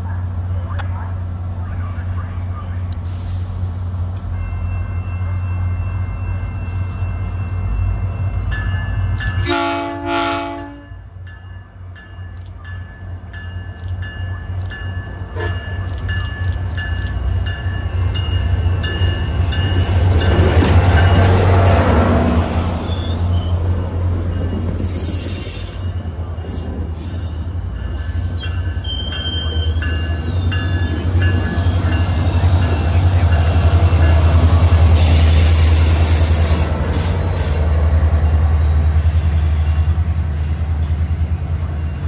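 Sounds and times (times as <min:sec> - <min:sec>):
diesel locomotive rumble: 0:00.0 - 0:42.0
train horn blasts: 0:09.4 - 0:11.0
wheels rolling on rail: 0:11.2 - 0:42.0.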